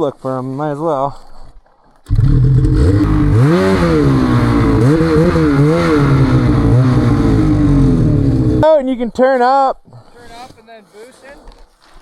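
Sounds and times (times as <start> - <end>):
snowmobile engine revving: 2.1 - 8.7.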